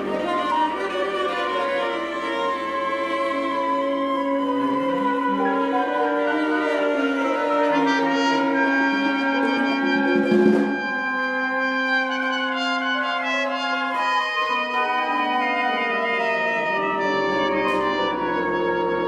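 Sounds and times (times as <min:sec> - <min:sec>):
chamber ensemble playing chords: 0:00.0 - 0:19.0
trumpet and french horn: 0:00.0 - 0:19.0
percussion crash: 0:09.7 - 0:11.4.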